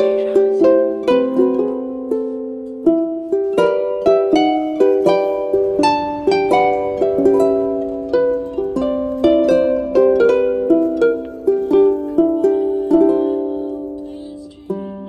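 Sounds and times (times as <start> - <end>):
plucked-string melody: 0.0 - 15.0.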